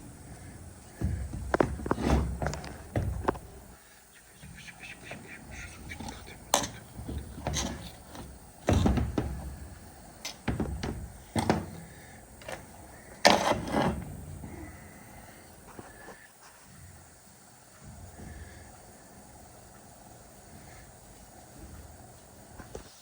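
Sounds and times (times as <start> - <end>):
loud clattering knocks: 0.9 - 3.8, 5.5 - 15.3.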